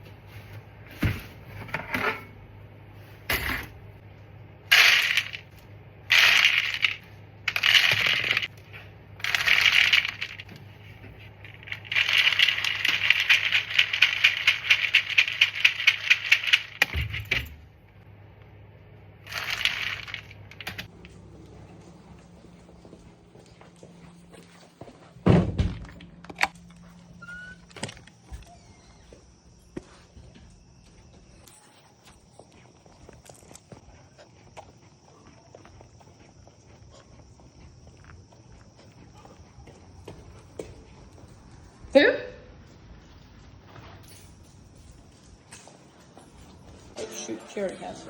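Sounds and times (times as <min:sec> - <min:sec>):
dry kibble pouring into bowl: 0:04.7 - 0:05.4, 0:06.1 - 0:08.5, 0:09.2 - 0:10.4, 0:11.5 - 0:16.8, 0:19.3 - 0:20.8.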